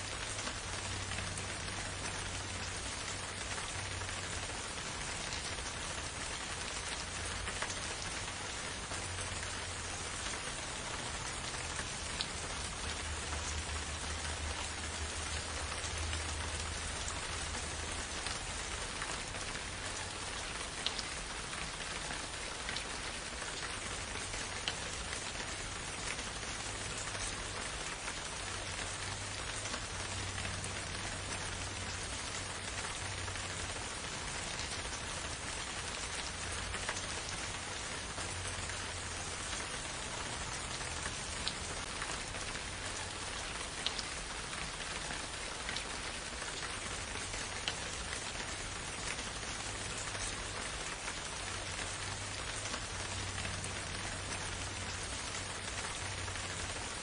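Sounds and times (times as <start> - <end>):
rain falling in forest: 0.0 - 57.0.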